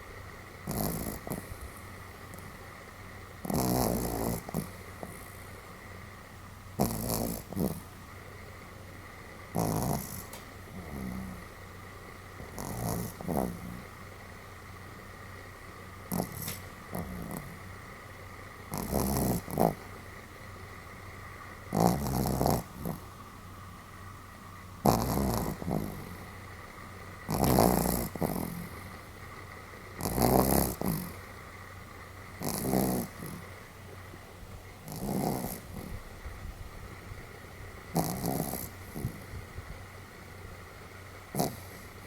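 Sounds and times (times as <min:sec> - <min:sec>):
small dog snoring: 0:00.6 - 0:02.7, 0:03.4 - 0:05.7, 0:06.7 - 0:08.1, 0:09.5 - 0:15.1, 0:16.0 - 0:18.0, 0:18.6 - 0:20.2, 0:21.6 - 0:23.2, 0:24.8 - 0:26.6, 0:27.2 - 0:29.2, 0:29.8 - 0:34.1, 0:34.8 - 0:36.2, 0:36.9 - 0:40.6, 0:41.2 - 0:42.0.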